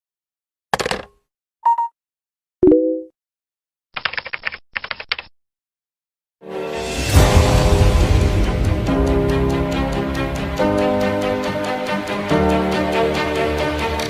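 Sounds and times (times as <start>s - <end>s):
rapid typing-like clicks: 4.0s - 5.3s
music: 6.4s - 14.0s.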